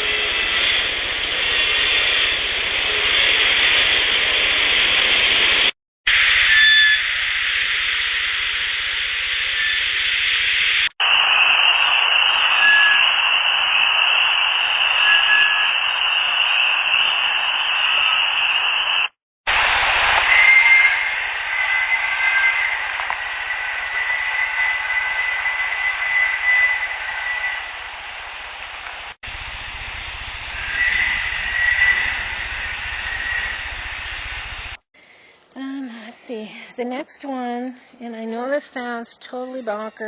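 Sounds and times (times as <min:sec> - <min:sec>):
steady hiss: 0:00.0 - 0:36.8
faint high whistle-like tones: 0:06.1 - 0:29.2, 0:29.9 - 0:34.6.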